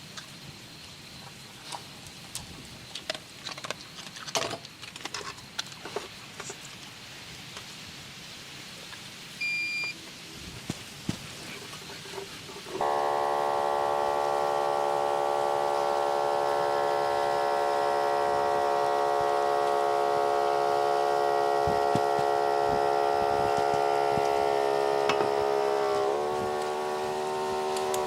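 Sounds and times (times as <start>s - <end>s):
small motor droning: 12.8s - 28.0s.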